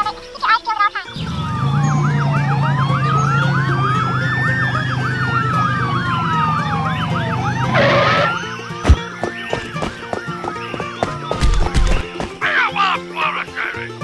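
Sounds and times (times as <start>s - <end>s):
siren fast yelp: 1.2s - 8.8s
siren wail: 1.2s - 9.1s.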